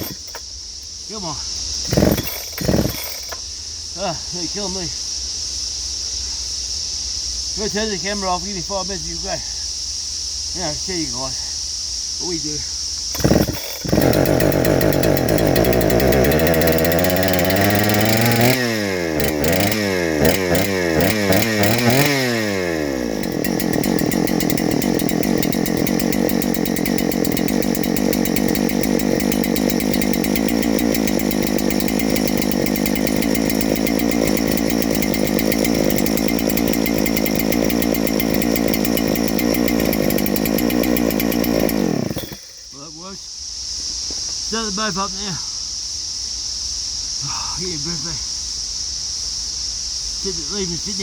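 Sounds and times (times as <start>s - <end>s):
chainsaw engine revving: 0.0s - 0.4s, 1.1s - 3.5s, 13.1s - 42.8s.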